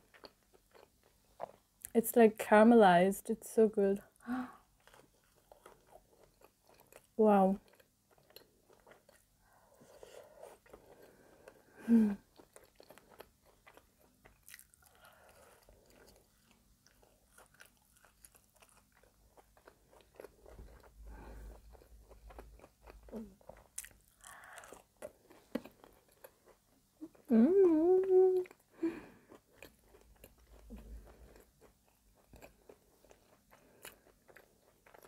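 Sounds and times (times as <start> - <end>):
wet sticky chewing clicks: 4.8 - 9.3
person humming: 11.8 - 12.2, 27.0 - 29.0.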